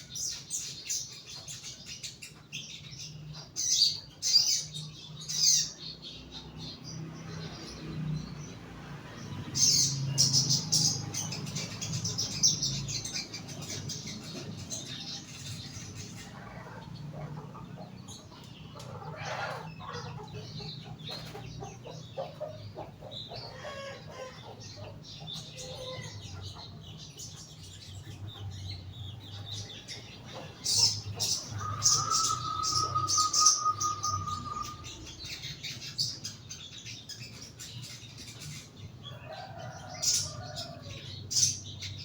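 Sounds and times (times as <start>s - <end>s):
bird harsh chattering calls: 28.4s - 36.4s.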